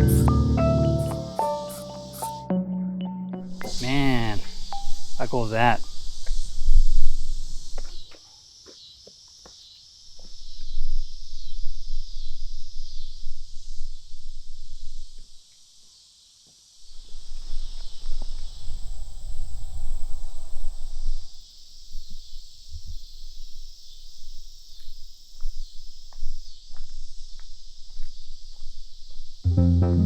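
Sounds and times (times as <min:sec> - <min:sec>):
insect chorus drone: 0:00.0 - 0:02.6, 0:03.5 - 0:29.5.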